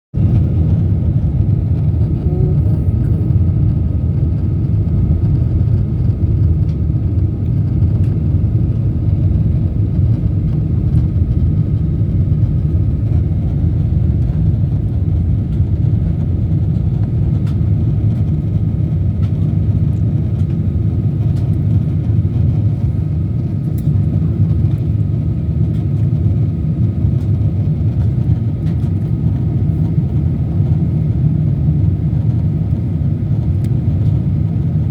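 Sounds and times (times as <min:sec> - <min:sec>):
jet engines and airflow rumble: 0:00.1 - 0:34.9
faint steady whine: 0:00.2 - 0:19.4.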